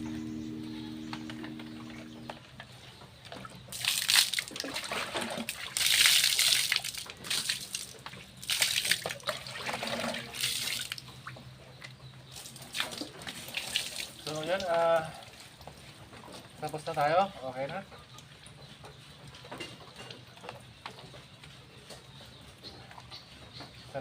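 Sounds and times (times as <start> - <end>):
water splashing and pouring: 3.7 - 11.2, 12.4 - 15.5.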